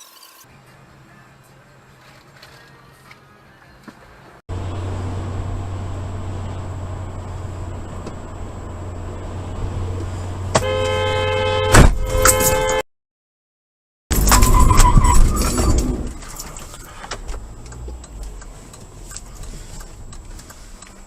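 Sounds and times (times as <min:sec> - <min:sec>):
car engine and road noise: 0:00.4 - 0:12.8, 0:14.1 - 0:21.0
car horn blaring: 0:10.5 - 0:12.8.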